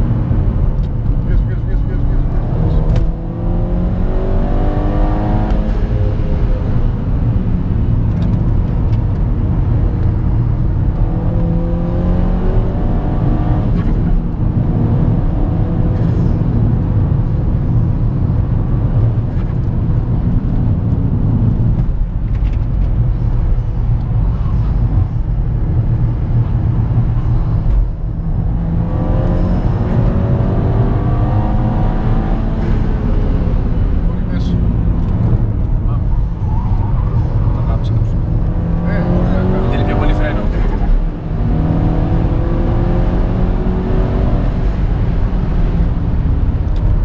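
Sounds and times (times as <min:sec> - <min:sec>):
car engine and exhaust accelerating: 0:00.0 - 0:47.0
road and wind noise: 0:00.0 - 0:47.0.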